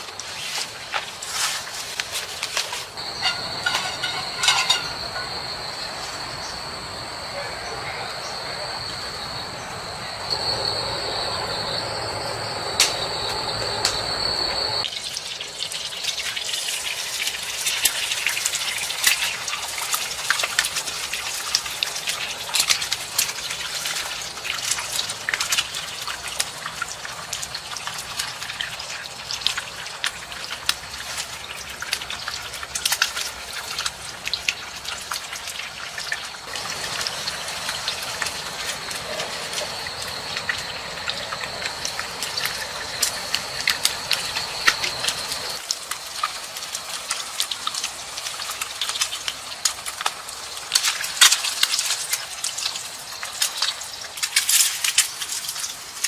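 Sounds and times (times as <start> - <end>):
high-pitched insect calls: 3.0 - 14.8, 36.0 - 47.3
water trickling and splashing: 13.0 - 56.0.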